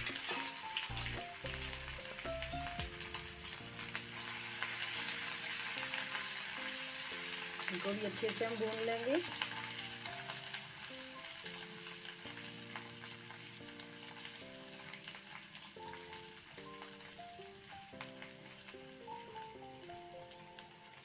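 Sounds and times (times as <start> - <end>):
paste sizzling in hot ghee: 0.0 - 21.0
soft background music: 0.0 - 21.0.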